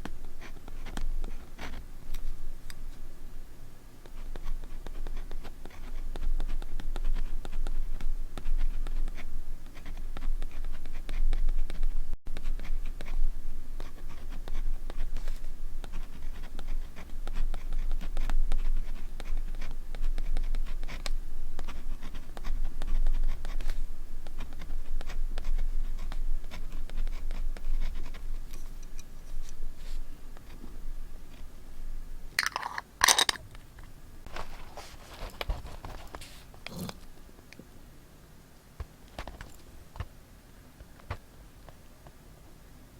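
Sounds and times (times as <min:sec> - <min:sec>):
scratching and rubbing on paper: 0:04.1 - 0:30.6, 0:34.3 - 0:37.0.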